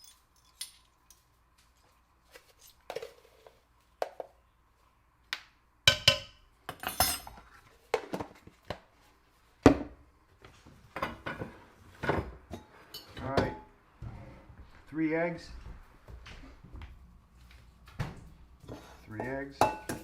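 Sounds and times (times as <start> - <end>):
utensils and dishes clinking: 0.0 - 1.2, 6.7 - 7.5, 11.0 - 13.6.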